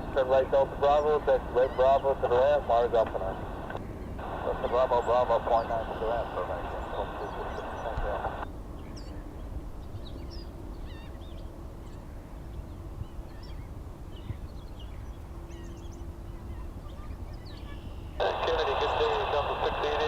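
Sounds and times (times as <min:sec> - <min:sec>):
steady low rumble: 0:00.0 - 0:09.8, 0:16.2 - 0:20.0
birds chirping: 0:00.0 - 0:20.0.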